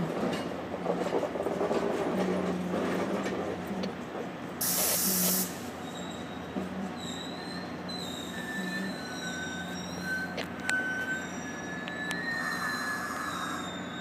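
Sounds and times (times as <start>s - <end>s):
train wheels rumbling on rails: 0.0s - 14.0s
air brake hiss: 4.6s - 5.7s.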